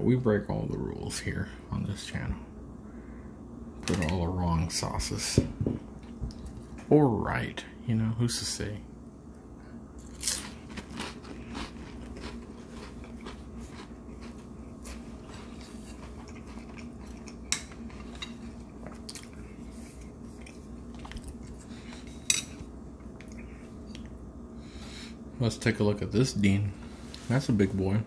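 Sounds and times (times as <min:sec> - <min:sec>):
cracker crunching: 0:10.0 - 0:24.2
chewing with small crackles: 0:10.0 - 0:24.3.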